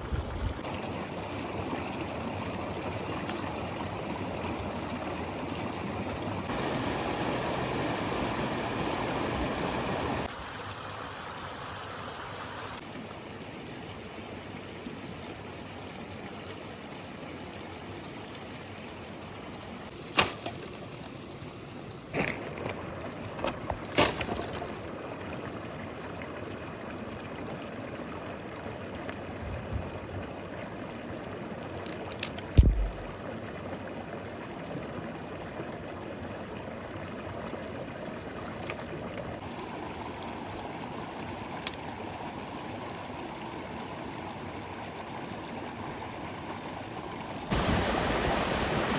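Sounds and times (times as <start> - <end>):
river flowing: 0.6 - 13.2, 30.4 - 48.9
sharp knocks and clicks: 32.6 - 33.2.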